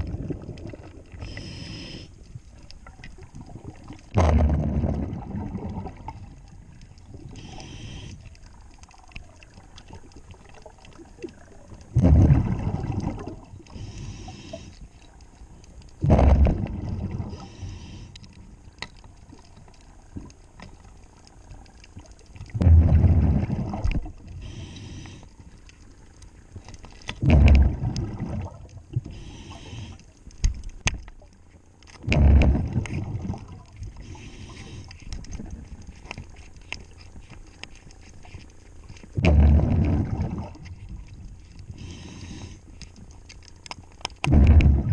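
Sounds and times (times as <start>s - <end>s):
regulator inhalation hiss: 1.3s - 2.1s, 7.4s - 8.2s, 13.7s - 14.8s, 17.3s - 18.2s, 24.4s - 25.3s, 29.1s - 30.0s, 34.0s - 34.9s, 41.8s - 42.6s
regulator exhaust bubbles: 27.2s - 29.2s, 44.2s - 44.9s.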